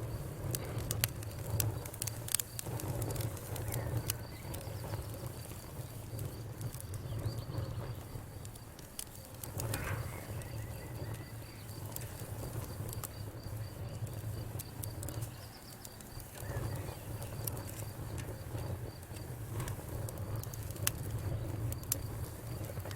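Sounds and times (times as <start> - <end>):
wood fire crackling: 0.0 - 22.9
insect chirping: 9.6 - 19.1.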